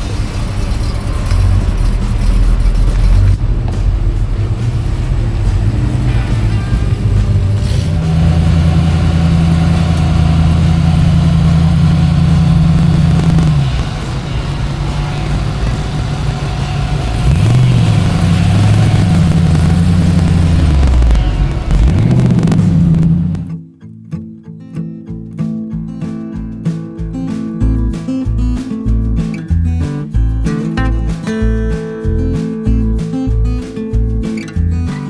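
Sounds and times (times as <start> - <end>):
truck engine revving: 0.0 - 23.6.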